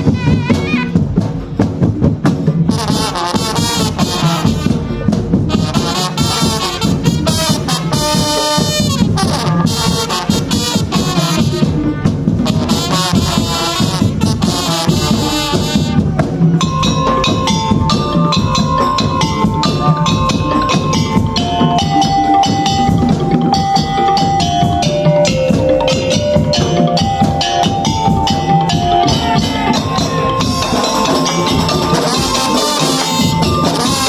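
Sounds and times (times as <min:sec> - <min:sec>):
wooden and drum percussion: 0:00.0 - 0:34.0
held-note melody: 0:16.6 - 0:34.0.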